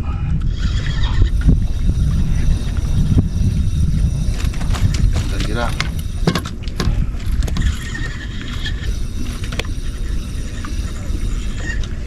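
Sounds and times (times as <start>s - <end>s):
boat engine low rumble: 0.0s - 12.0s
sharp knocks and clicks: 5.8s - 7.7s.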